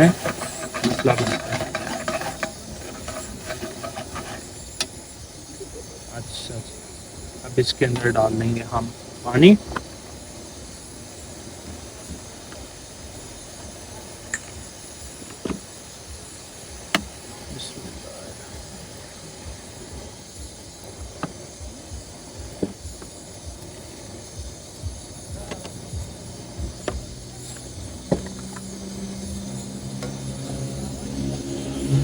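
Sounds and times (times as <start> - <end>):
utensils clinking against pot: 0.0 - 4.9
low hum: 23.2 - 32.0.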